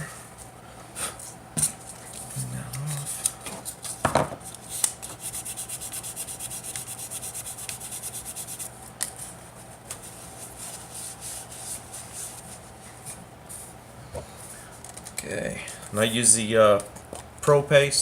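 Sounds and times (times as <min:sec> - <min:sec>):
hand rubbing fishing rod: 0:05.2 - 0:08.7.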